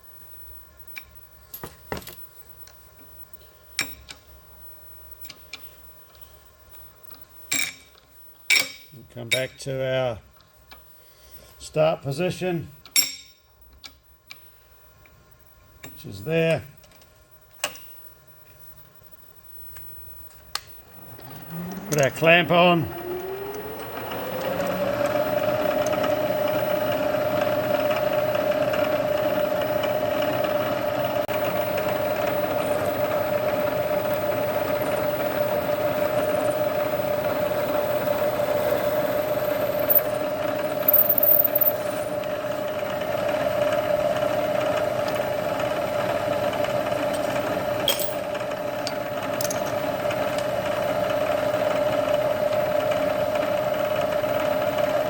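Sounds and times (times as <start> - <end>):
milling machine spindle humming: 20.8 - 55.0.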